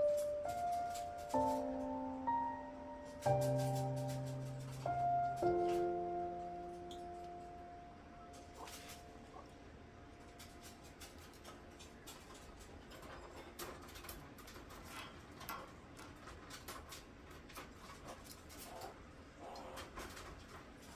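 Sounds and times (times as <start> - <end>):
kittens mewing: 18.6 - 20.0.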